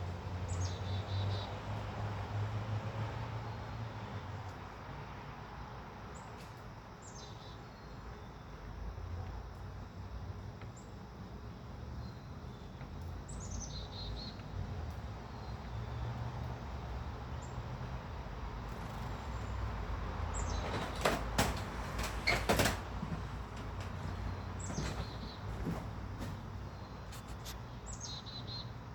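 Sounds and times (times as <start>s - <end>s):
small birds chirping: 12.0s - 14.6s, 23.9s - 28.8s
knocks and rustles on feeder: 20.4s - 27.5s.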